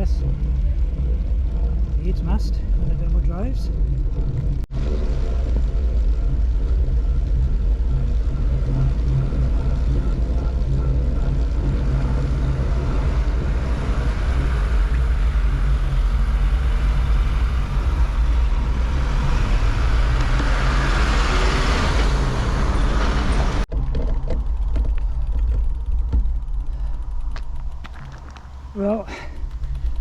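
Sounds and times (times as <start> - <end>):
road traffic rumble: 0.0 - 30.0
vehicle passing close by: 9.0 - 23.7.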